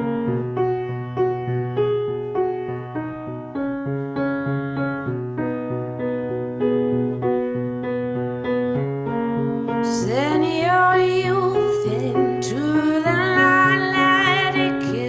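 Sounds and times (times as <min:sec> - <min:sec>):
electric piano chords: 0:00.0 - 0:15.0
person singing: 0:09.8 - 0:15.0.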